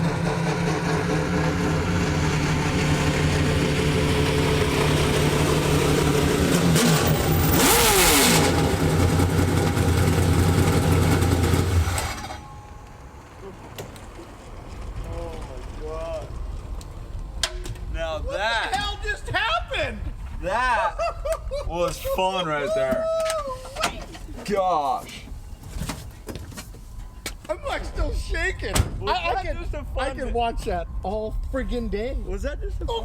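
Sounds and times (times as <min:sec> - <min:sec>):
loud rush of passing vehicle: 0:00.0 - 0:12.4
truck engine at high revs: 0:00.0 - 0:12.4.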